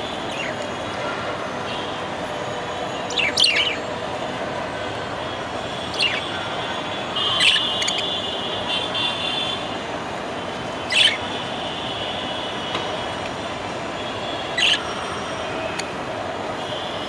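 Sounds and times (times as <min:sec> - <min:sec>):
budgerigar chirping: 0:03.1 - 0:03.8, 0:05.9 - 0:06.4, 0:07.3 - 0:08.1, 0:10.9 - 0:11.2, 0:14.6 - 0:14.8.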